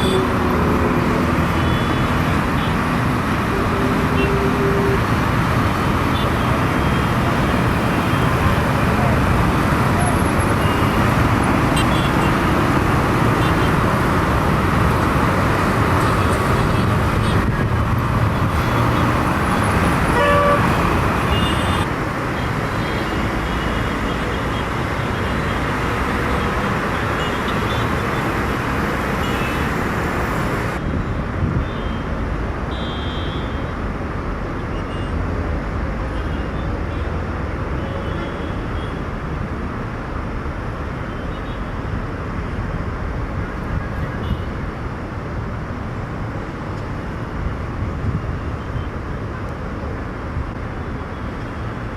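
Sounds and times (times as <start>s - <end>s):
road traffic noise: 0.0s - 51.9s
vehicle horn toots: 20.1s - 21.9s.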